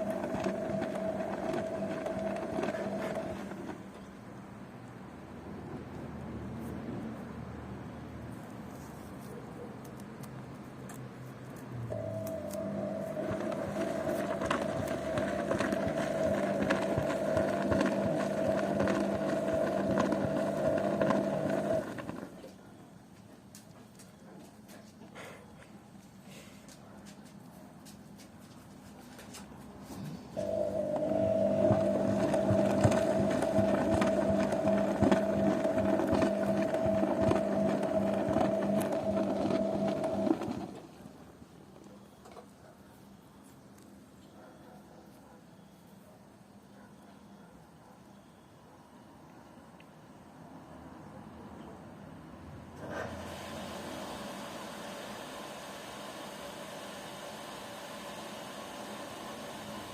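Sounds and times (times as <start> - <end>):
washing machine motor whining: 0.0 - 4.0, 11.9 - 22.5, 30.2 - 41.4, 52.8 - 59.9.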